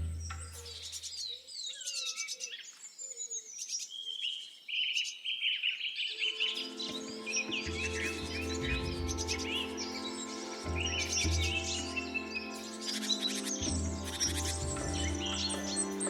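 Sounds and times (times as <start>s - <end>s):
birds chirping and calling: 0.0s - 16.0s
background music: 6.2s - 16.0s.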